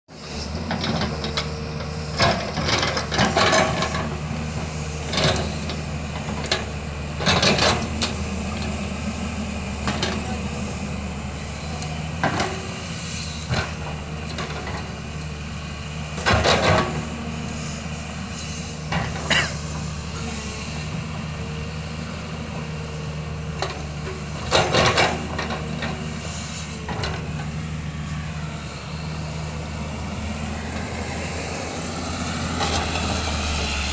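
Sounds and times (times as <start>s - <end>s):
diesel engine running under load: 0.1s - 33.9s.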